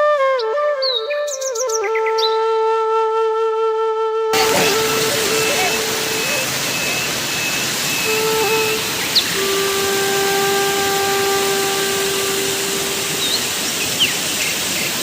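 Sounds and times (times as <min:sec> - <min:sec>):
flute music: 0:00.0 - 0:14.7
rushing hiss: 0:04.4 - 0:15.0.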